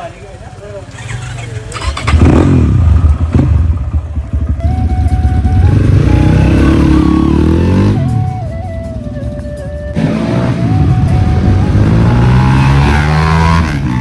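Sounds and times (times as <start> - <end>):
dirt bike engine revving: 1.0 - 4.6, 5.5 - 8.1, 9.9 - 14.0.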